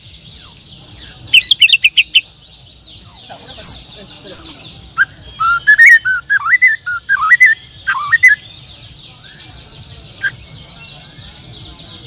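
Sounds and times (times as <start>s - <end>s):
songbirds chirping: 0.0s - 12.0s
whistled bird song: 0.0s - 12.0s.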